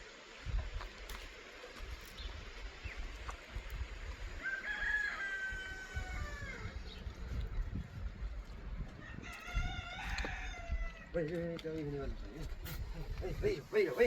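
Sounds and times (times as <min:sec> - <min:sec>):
rooster crowing: 0:04.4 - 0:06.7, 0:09.0 - 0:11.1.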